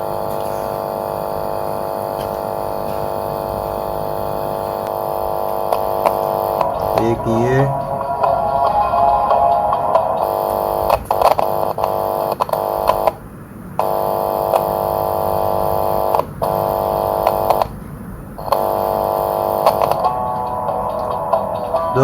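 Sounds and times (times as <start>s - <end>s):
harsh electronic buzzing tone: 0.0s - 13.2s, 13.8s - 17.8s, 18.4s - 22.0s
probe contact clicks: 4.8s - 6.8s, 10.2s - 13.2s, 16.0s - 17.8s, 19.6s - 20.1s.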